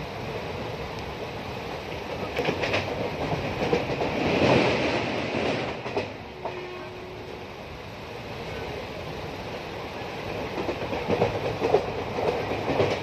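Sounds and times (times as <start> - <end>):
train running: 0.0 - 13.0.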